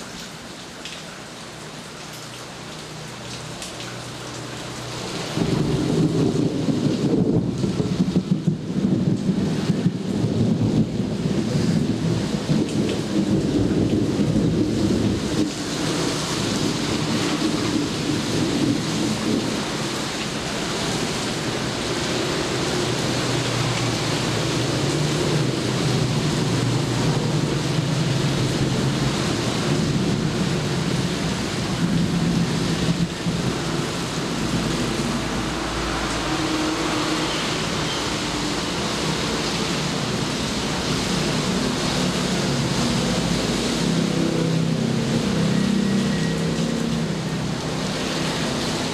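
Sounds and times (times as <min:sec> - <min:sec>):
heavy rain: 0:00.0 - 0:48.9
low thunder rumbling: 0:05.4 - 0:16.0.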